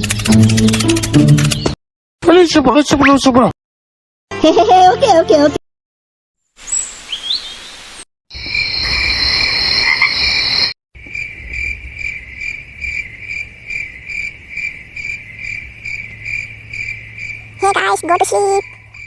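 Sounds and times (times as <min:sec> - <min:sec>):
crickets chirping: 0:08.3 - 0:19.0.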